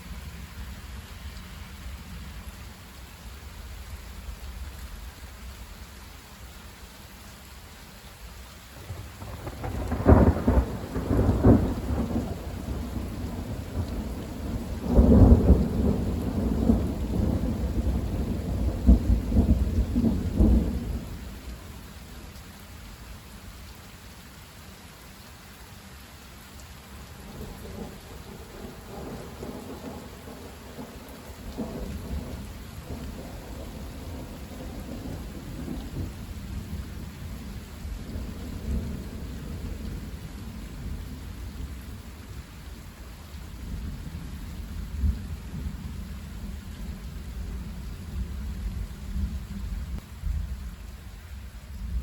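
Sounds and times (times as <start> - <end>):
steady rain: 0.0 - 52.0
thunder rumbling and cracking: 8.9 - 21.2, 27.4 - 40.1.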